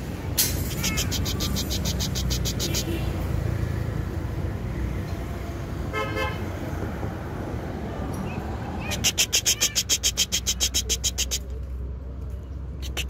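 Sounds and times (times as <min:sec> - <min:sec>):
harsh bird call: 0:00.6 - 0:03.0, 0:08.8 - 0:11.5.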